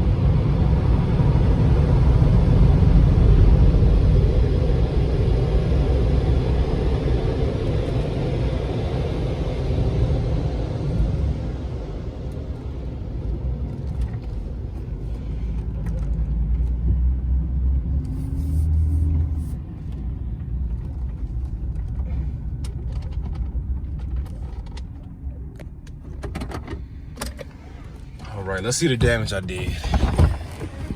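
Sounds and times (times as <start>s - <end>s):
truck engine rumbling: 18.1s - 30.9s.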